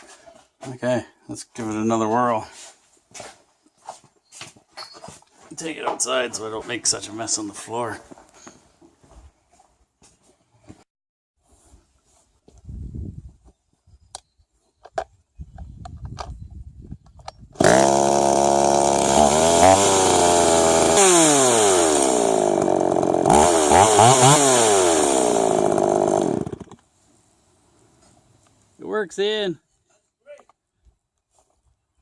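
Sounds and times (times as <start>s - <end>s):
chainsaw engine revving: 17.6s - 26.8s.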